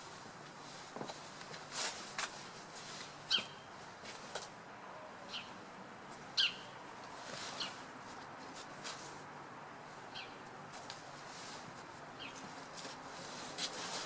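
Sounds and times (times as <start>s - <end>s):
bird calling: 6.4s - 6.8s.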